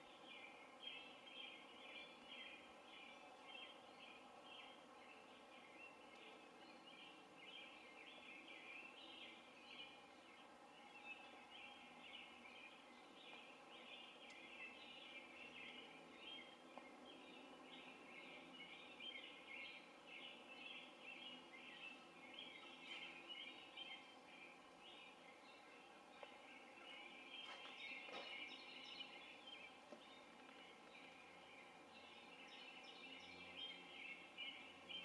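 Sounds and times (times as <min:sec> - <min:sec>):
background hiss: 0:00.0 - 0:35.0
faint birdsong chirps: 0:00.0 - 0:35.0.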